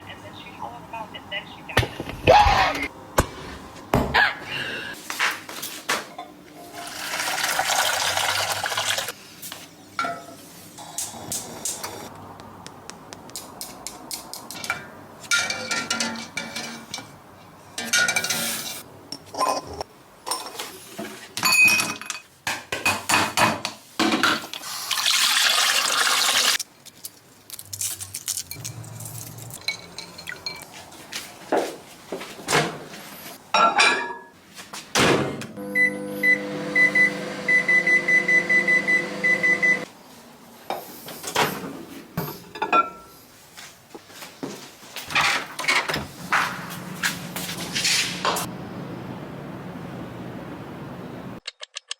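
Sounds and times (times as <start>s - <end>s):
water running: 6.7s - 9.2s, 24.6s - 26.6s
dishes and glassware clinking: 10.0s - 10.4s, 14.5s - 17.2s, 17.8s - 20.7s, 21.4s - 24.4s, 29.6s - 30.8s, 33.5s - 34.4s, 42.2s - 43.1s.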